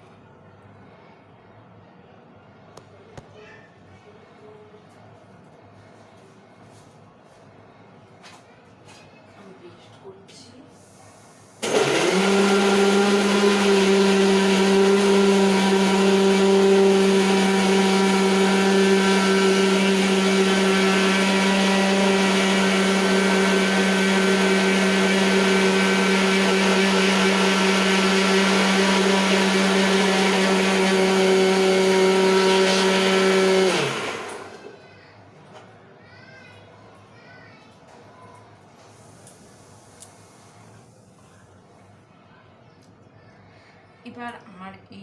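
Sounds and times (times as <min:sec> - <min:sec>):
mixer grinder running: 0:11.6 - 0:34.8
motor winding down: 0:11.6 - 0:34.8.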